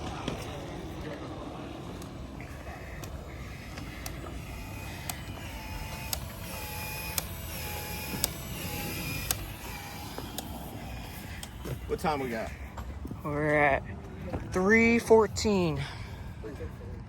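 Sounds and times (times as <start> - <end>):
expansion tool motor whine: 0.0 - 13.8
tool clicking: 3.0 - 12.1.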